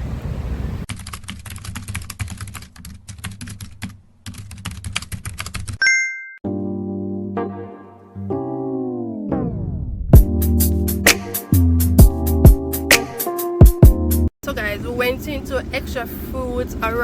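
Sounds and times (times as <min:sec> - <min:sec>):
bell ding: 0:05.8 - 0:06.4
keyboard music with sustained notes: 0:06.4 - 0:14.3.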